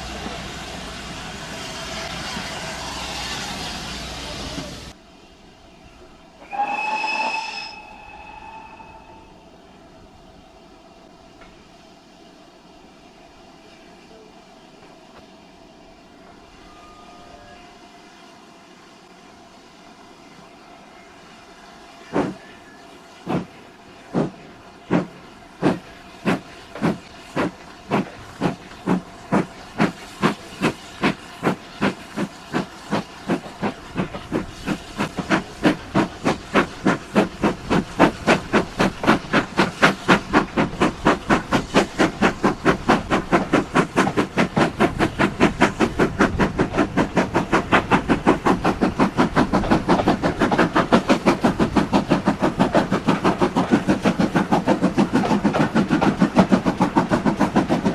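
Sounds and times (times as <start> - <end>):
steam hissing: 0.0 - 5.0, 6.4 - 9.7, 16.5 - 57.9
steam locomotive chuffing: 6.5 - 9.4, 21.2 - 57.9.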